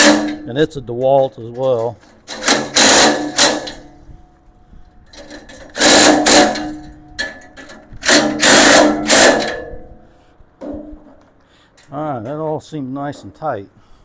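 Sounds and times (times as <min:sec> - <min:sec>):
power driver tightening bolts: 0:00.0 - 0:03.9, 0:05.1 - 0:09.8.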